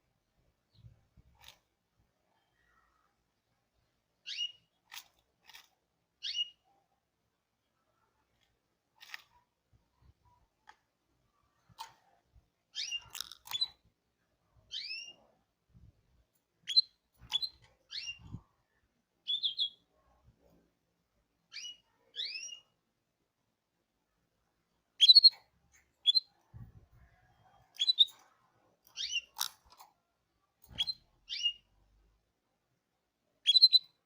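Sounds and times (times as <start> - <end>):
canary chirping: 3.8 - 6.9, 11.5 - 15.6, 16.6 - 20.1, 21.3 - 22.9, 24.8 - 30.0, 30.6 - 32.0, 33.4 - 34.0.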